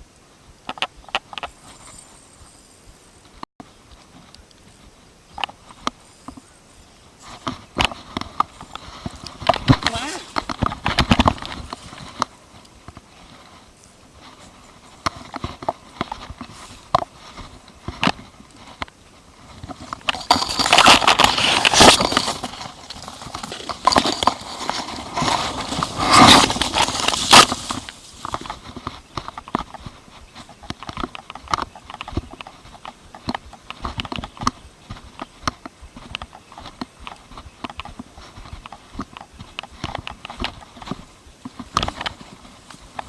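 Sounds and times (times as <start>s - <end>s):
rapid clicks and knocks: 19.6s - 42.2s.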